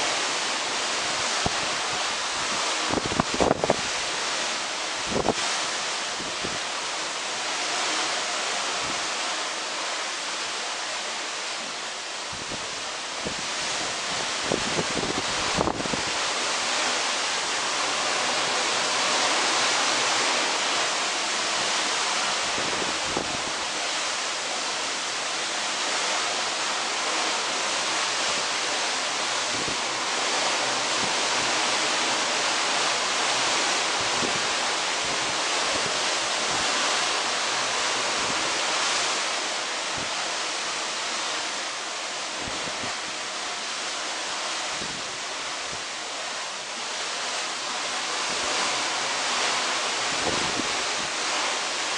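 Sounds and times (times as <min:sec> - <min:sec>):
sea water rushing along hull: 0:00.0 - 0:51.9
wind on microphone: 0:00.5 - 0:06.8, 0:11.6 - 0:17.1, 0:18.1 - 0:24.7, 0:29.3 - 0:40.4, 0:42.2 - 0:43.4, 0:44.6 - 0:46.0, 0:48.2 - 0:51.9.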